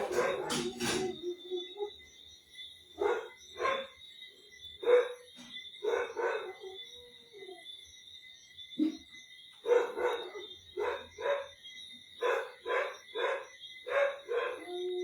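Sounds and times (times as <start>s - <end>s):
dog barking: 0.0s - 1.2s, 3.0s - 4.0s, 4.8s - 7.0s, 9.6s - 11.6s, 12.2s - 14.8s.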